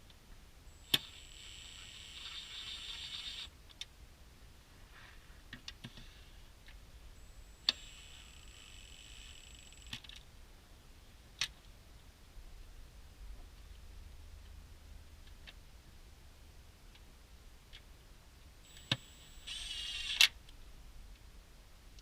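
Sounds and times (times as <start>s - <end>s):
cordless drill whining: 0.8s - 3.5s, 7.5s - 9.9s, 18.7s - 20.2s
sharp clicks: 0.9s - 3.9s, 18.7s - 20.4s.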